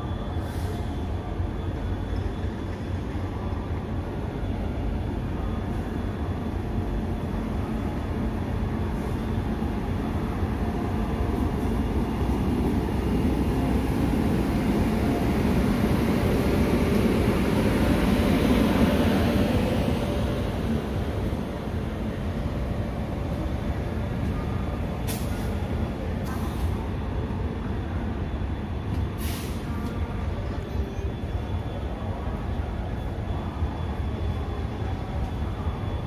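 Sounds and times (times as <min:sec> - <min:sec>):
train rumbling past: 0:00.0 - 0:36.0.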